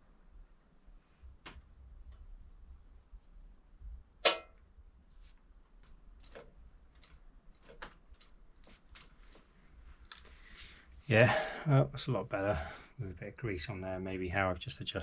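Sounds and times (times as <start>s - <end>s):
light clicks and taps: 5.7s - 10.4s.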